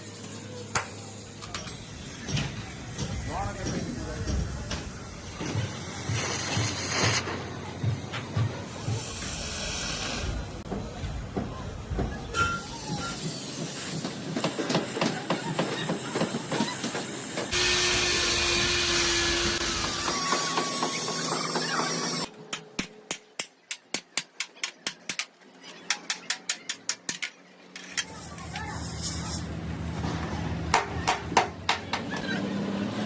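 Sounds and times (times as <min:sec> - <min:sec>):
steady air hiss: 0:00.1 - 0:07.2, 0:08.7 - 0:10.6.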